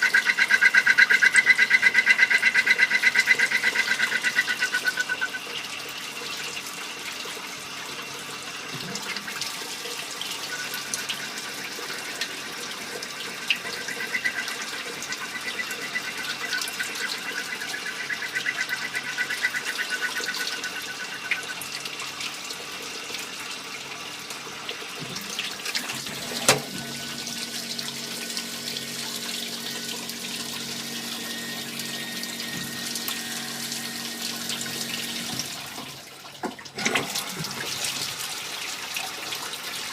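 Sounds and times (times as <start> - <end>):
cutting fluid hissing and splashing: 24.6 - 36.1.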